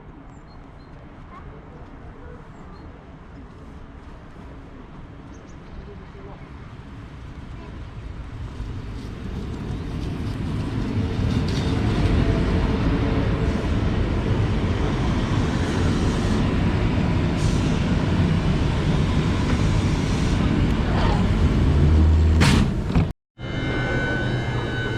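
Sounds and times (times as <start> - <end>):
train wheels rumbling on rails: 6.2 - 23.1.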